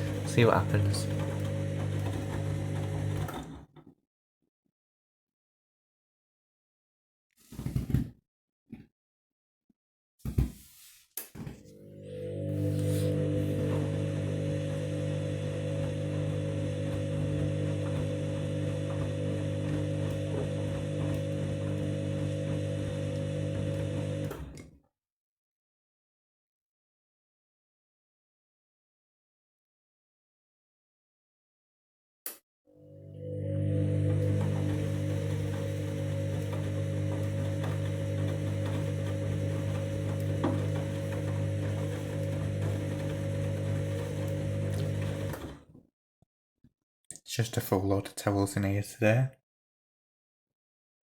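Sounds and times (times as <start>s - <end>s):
washing machine humming: 0.0s - 3.6s, 11.6s - 24.6s, 32.8s - 45.6s.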